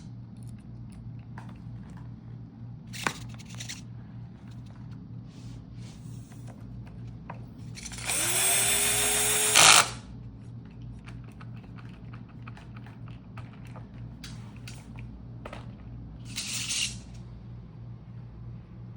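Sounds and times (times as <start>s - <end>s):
power drill whine: 7.8s - 10.0s.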